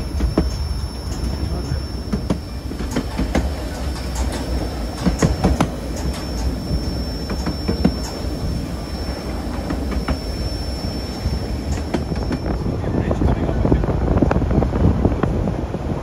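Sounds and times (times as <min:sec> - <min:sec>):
wheels clicking over rail joints: 0:00.0 - 0:12.6
high wheel squeal: 0:00.0 - 0:13.3
railway cars rumbling: 0:00.0 - 0:16.0.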